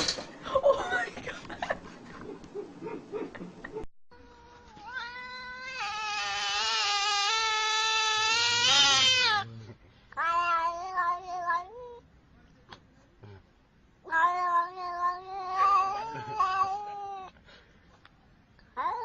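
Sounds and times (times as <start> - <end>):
cat yowling: 4.3 - 9.5, 10.2 - 12.0, 14.1 - 17.3.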